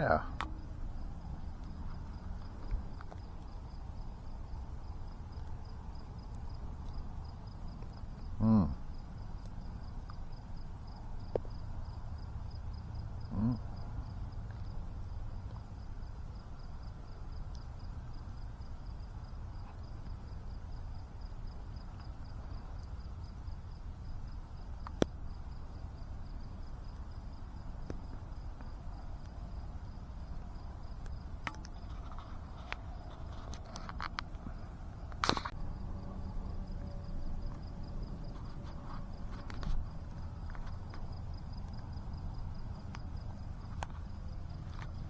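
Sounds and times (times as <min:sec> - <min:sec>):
insect chirring: 0:00.0 - 0:45.0
low rumble: 0:34.2 - 0:43.6.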